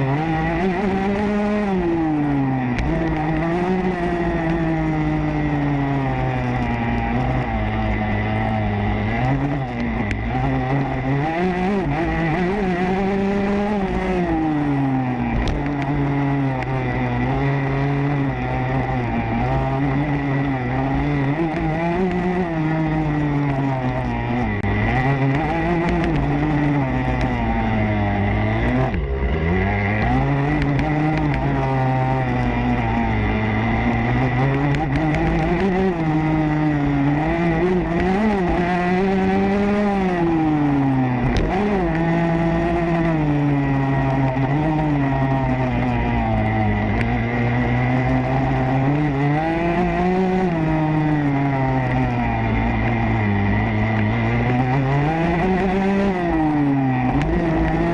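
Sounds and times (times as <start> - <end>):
motocross bike engine revving: 0.0 - 57.9.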